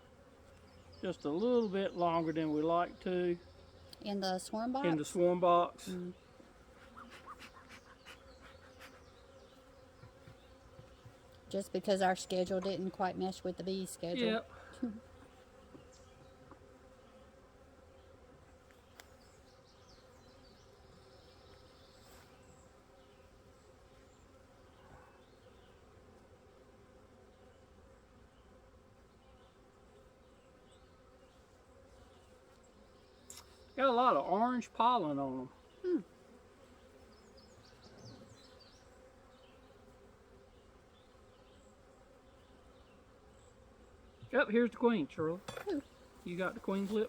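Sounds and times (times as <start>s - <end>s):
bees humming: 0.0s - 47.0s.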